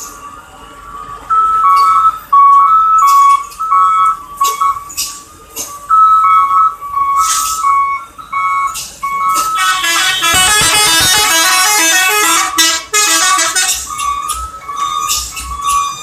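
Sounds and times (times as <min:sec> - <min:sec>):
melody of high tones: 0:09.3 - 0:12.7.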